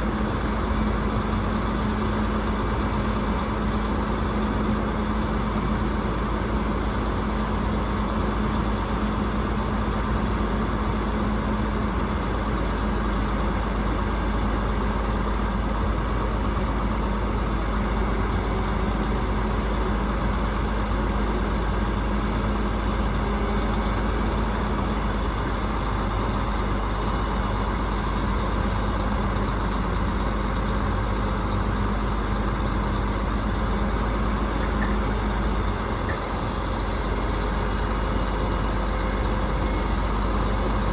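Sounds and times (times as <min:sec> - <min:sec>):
hvac unit droning: 0:20.6 - 0:40.9.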